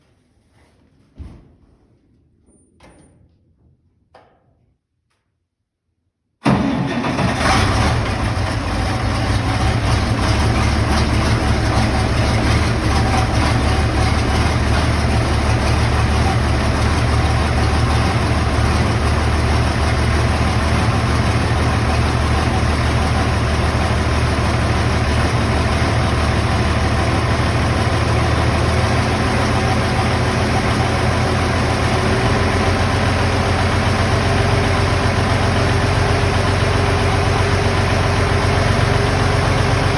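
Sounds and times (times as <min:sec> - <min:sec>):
diesel tractor idling: 0:06.4 - 0:39.9.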